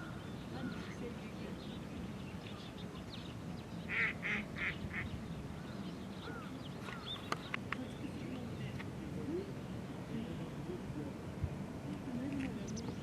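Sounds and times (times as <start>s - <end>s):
mallard quacking: 3.9s - 5.1s.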